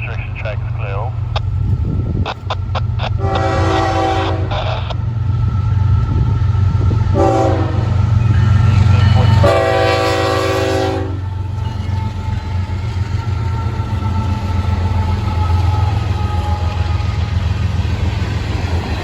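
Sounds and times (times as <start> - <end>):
diesel locomotive rumble: 0.0 - 19.0
locomotive horn blasts: 3.2 - 4.9, 7.1 - 8.0, 8.9 - 11.3.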